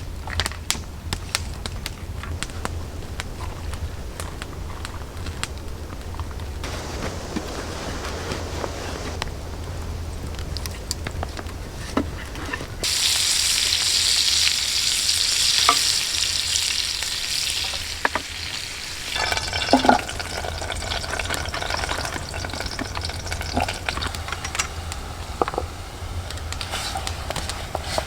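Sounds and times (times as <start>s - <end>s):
food sizzling in a pan: 6.6s - 9.2s, 12.8s - 28.0s.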